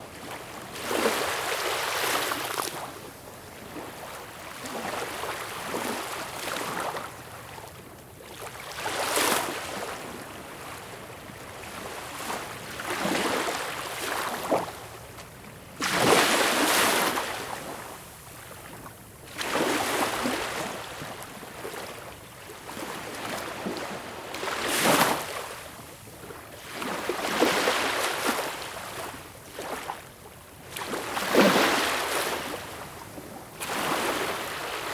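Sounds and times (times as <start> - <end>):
waves breaking on a beach: 18.6 - 34.9.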